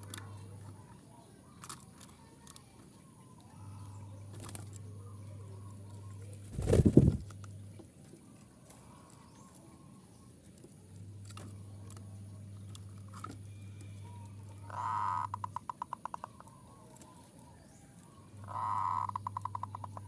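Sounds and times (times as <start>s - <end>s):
steady low hum: 3.0s - 8.0s, 8.9s - 20.0s
dove cooing: 3.6s - 7.3s, 13.8s - 20.0s.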